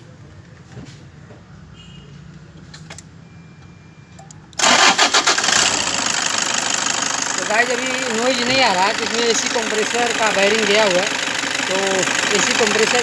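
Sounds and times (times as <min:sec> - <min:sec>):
diesel engine cranking and running: 0:04.3 - 0:13.0.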